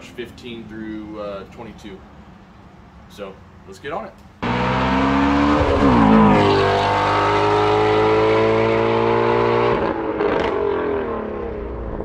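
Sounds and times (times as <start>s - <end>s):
car engine accelerating: 4.4s - 12.0s.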